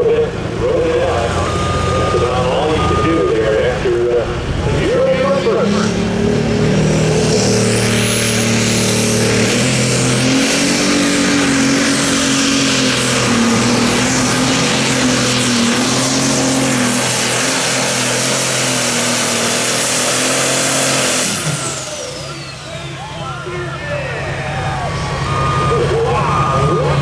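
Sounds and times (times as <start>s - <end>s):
diesel engine at high revs: 0.0s - 27.0s
turbo whistle: 25.0s - 27.0s.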